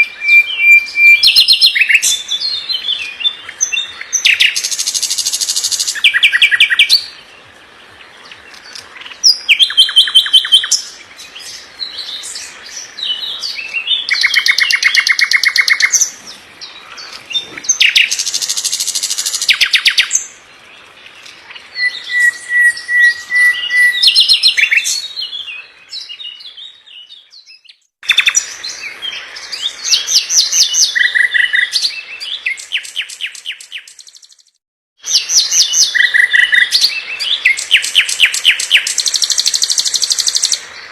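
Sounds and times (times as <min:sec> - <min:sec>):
songbird trilling: 0:00.0 - 0:07.2, 0:08.6 - 0:11.0, 0:11.9 - 0:20.3, 0:21.4 - 0:28.8, 0:35.1 - 0:40.7.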